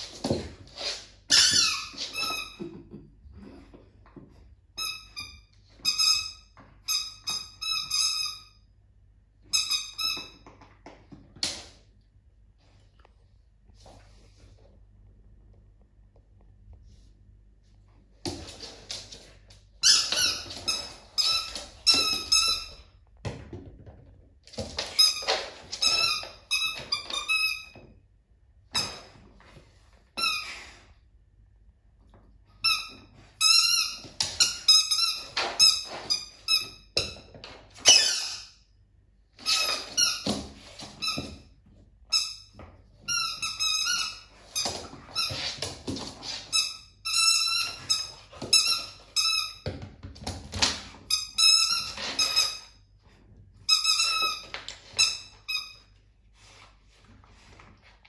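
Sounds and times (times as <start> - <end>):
squeaky dog toy squeaking: 1.3 - 2.6, 4.8 - 8.6, 9.5 - 10.4, 37.8 - 38.6, 51.1 - 52.8, 53.7 - 55.8.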